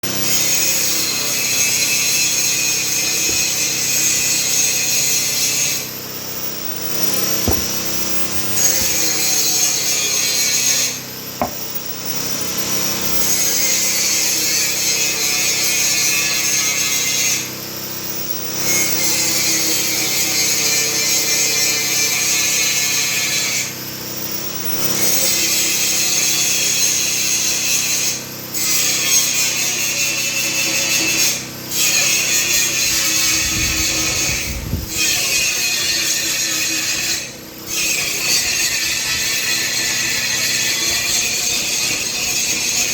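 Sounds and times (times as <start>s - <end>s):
chainsaw cutting wood: 0.1s - 11.9s.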